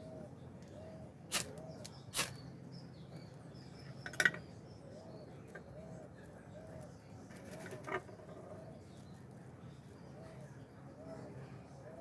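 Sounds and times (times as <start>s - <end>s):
sharp hissing scrapes: 2.2s - 2.4s.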